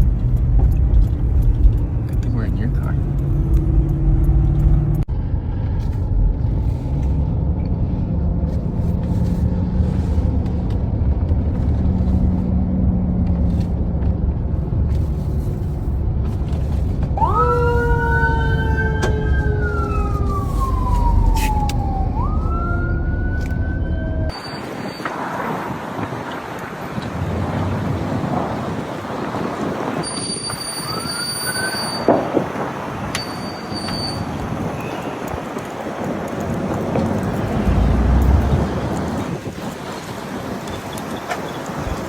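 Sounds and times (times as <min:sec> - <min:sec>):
car road rumble from inside: 0:00.0 - 0:24.4, 0:33.8 - 0:42.0
emergency siren wailing: 0:17.2 - 0:25.5.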